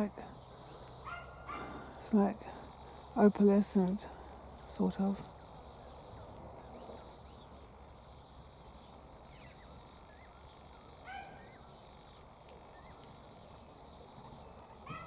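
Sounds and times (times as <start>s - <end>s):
high ticks: 0.8s - 2.2s, 3.8s - 7.2s, 11.4s - 14.8s
faint rising bird chirps: 4.5s - 15.0s.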